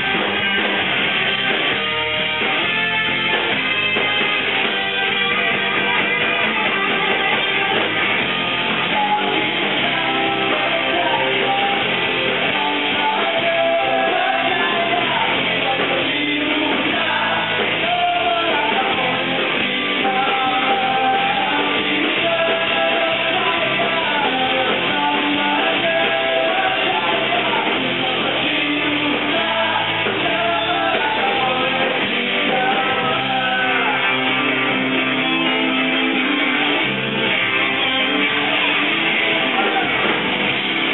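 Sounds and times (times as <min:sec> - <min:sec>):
rock band playing live: 0:00.0 - 0:40.9
person singing: 0:08.7 - 0:35.0, 0:37.8 - 0:40.2.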